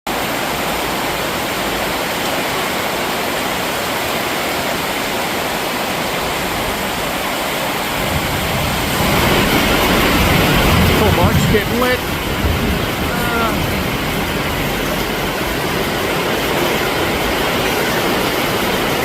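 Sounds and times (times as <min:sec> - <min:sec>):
heavy rain pouring: 0:00.1 - 0:19.0
low rumble: 0:07.8 - 0:17.1.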